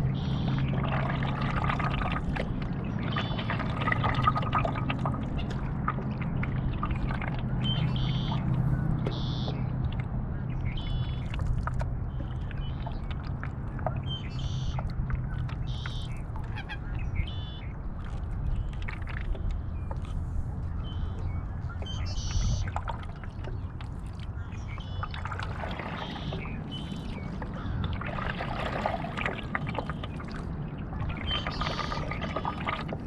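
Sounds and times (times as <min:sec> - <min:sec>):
birds calling: 0:00.0 - 0:01.0, 0:02.8 - 0:04.0, 0:06.2 - 0:09.7, 0:13.7 - 0:17.8, 0:19.4 - 0:32.8
paddle splashing in water: 0:00.0 - 0:33.0.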